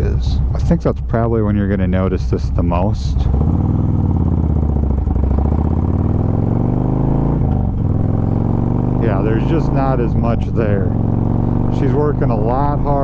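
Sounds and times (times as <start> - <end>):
motorcycle engine accelerating: 3.1 - 13.0.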